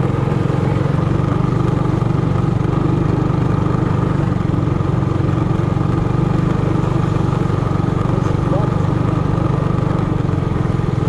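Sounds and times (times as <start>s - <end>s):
minibike engine running: 0.0s - 11.0s.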